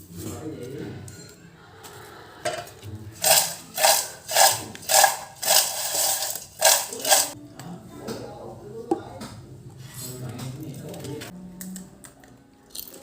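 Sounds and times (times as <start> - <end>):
kitchenware clattering or scraping: 2.4 - 7.4.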